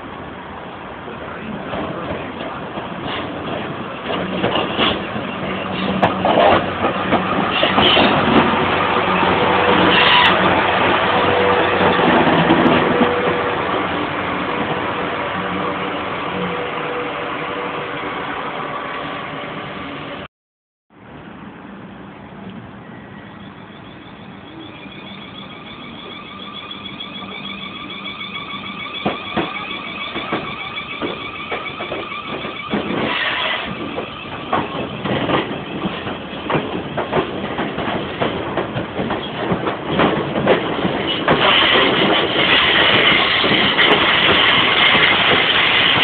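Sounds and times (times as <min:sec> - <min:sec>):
wheels clacking over rail joints: 0:01.4 - 0:14.8, 0:24.8 - 0:46.0
electric train whine: 0:03.4 - 0:20.3, 0:22.6 - 0:46.0.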